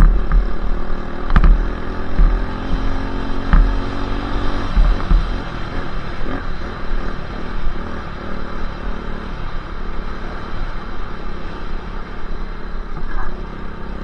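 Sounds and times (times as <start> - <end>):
dirt bike engine running: 0.0 - 11.6.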